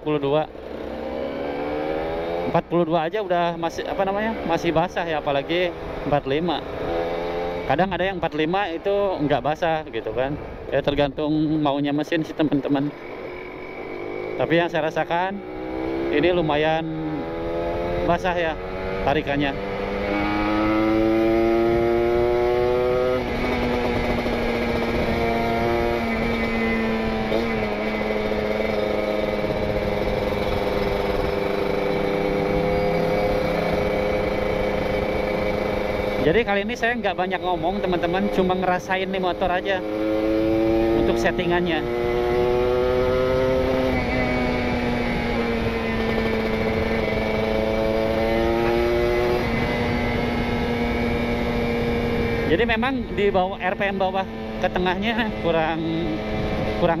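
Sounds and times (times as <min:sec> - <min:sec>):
two-stroke motorcycle engine revving: 0:00.0 - 0:09.7, 0:11.8 - 0:57.0
road noise: 0:00.0 - 0:57.0
wind noise: 0:16.8 - 0:38.4, 0:39.8 - 0:57.0.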